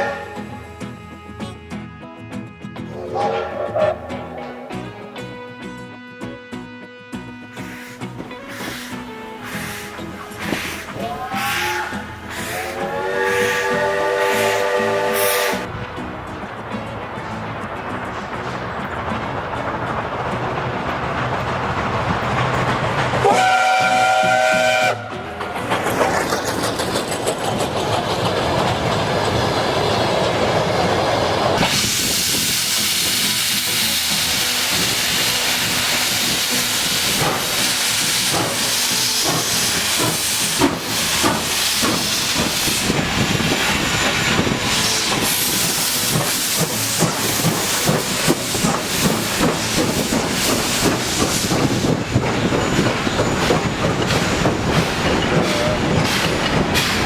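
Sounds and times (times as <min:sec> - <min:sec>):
steam hissing: 0:07.6 - 0:15.7, 0:25.6 - 0:57.0
steam locomotive chuffing: 0:07.6 - 0:57.0.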